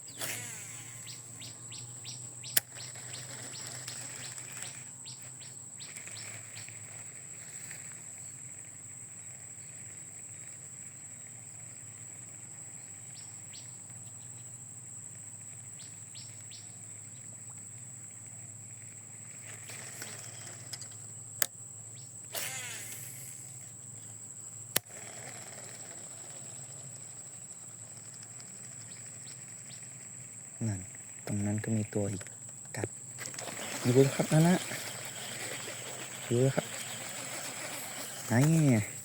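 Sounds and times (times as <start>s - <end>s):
birds chirping: 0.0s - 7.0s, 28.6s - 39.0s
high-pitched insect drone: 0.0s - 15.0s, 21.9s - 24.1s, 24.8s - 39.0s.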